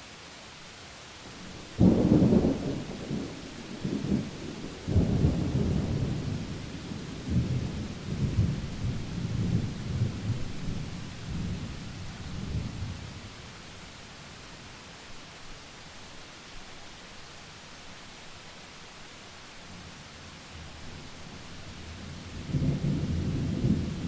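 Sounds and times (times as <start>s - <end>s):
steady rain hiss: 0.0s - 24.0s
thunder cracking and rumbling: 1.4s - 11.8s, 22.4s - 24.0s.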